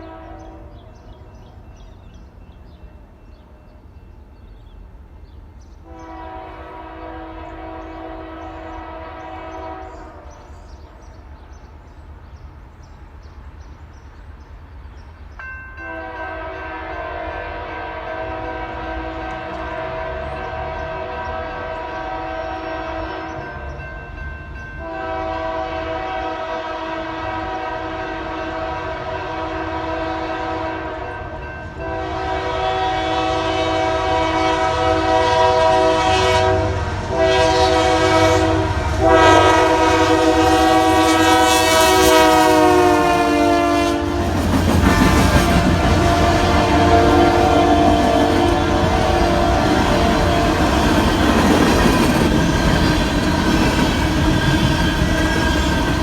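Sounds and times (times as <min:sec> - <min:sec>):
locomotive air horn blasts: 0:00.0 - 0:00.8, 0:05.8 - 0:10.5, 0:15.8 - 0:23.5, 0:24.8 - 0:53.1
rumble of passing train: 0:00.0 - 0:56.0.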